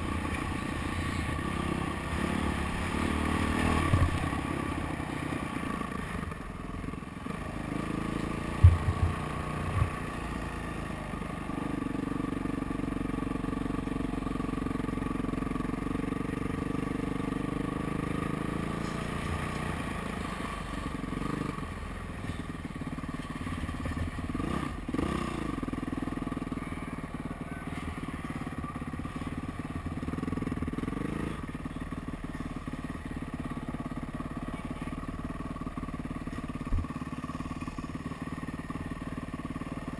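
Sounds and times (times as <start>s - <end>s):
dirt bike engine revving: 0.0s - 6.3s, 7.3s - 12.5s, 15.8s - 22.5s, 23.6s - 26.5s, 30.0s - 31.5s
heavy thumps: 8.6s - 10.0s.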